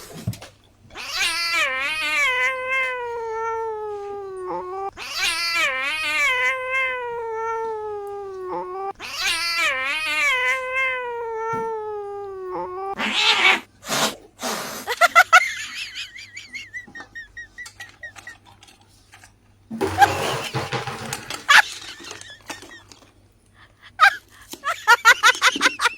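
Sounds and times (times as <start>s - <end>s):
cat yowling: 0.9s - 13.7s.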